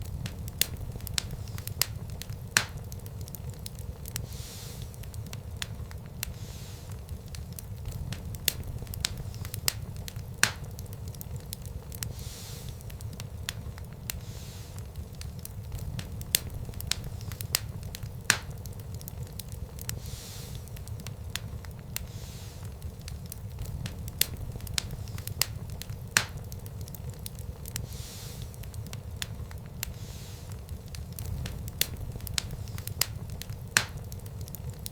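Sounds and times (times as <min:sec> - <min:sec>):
burning wood popping: 0:00.0 - 0:34.9
low rumble of flames: 0:00.0 - 0:34.9
wood fire crackling: 0:00.0 - 0:34.9.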